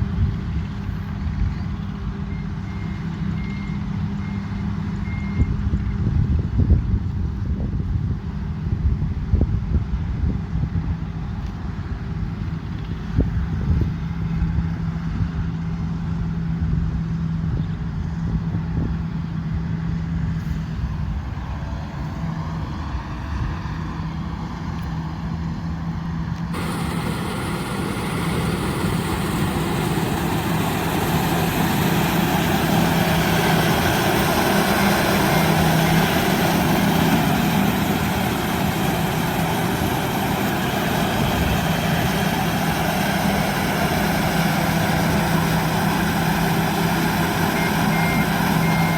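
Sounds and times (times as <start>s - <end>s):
combine harvester engine humming: 25.9s - 48.9s
broad rushing noise: 26.5s - 48.9s.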